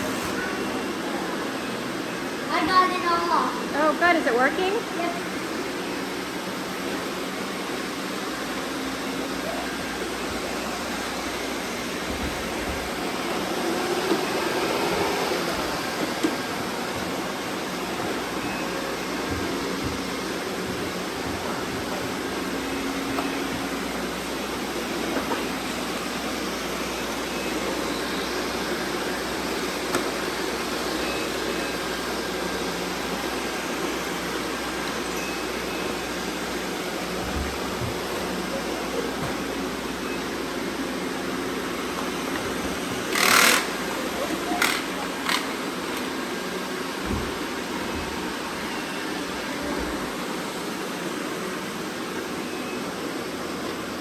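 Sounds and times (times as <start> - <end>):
robot vacuums whirring: 1.6 - 51.9
robot vacuum whirring: 41.1 - 46.2.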